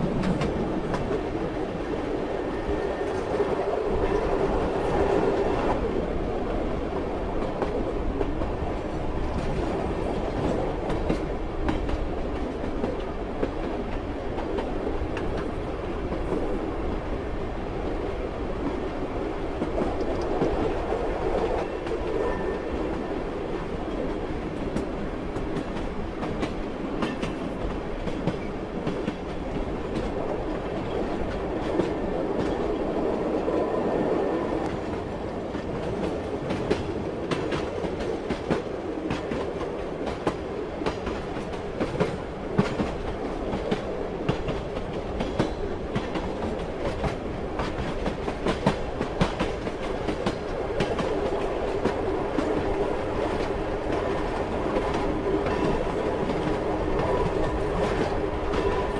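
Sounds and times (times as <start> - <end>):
train rumbling on rails: 0.0 - 58.9.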